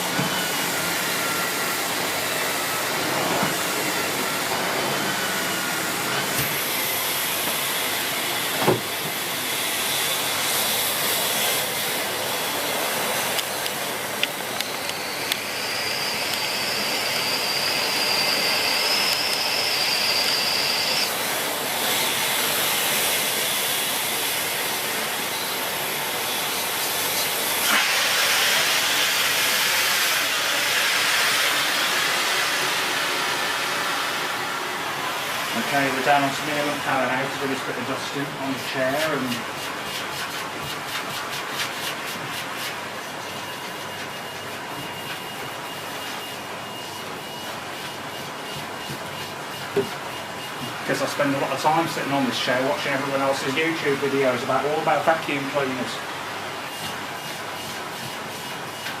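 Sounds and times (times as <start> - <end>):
vacuum cleaner running: 0.0 - 59.0
faint high whistle: 14.6 - 21.1.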